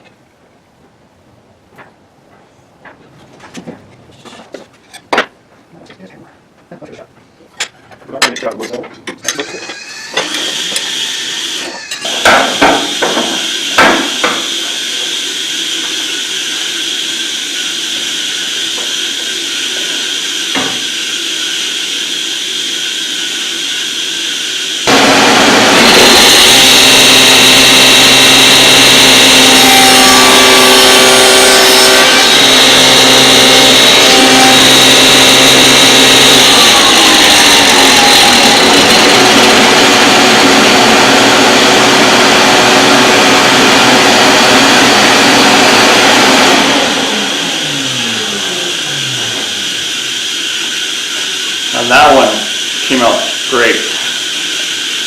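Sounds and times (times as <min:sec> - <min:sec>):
table saw cutting: 0:09.3 - 0:55.0
knocks: 0:12.1 - 0:14.6.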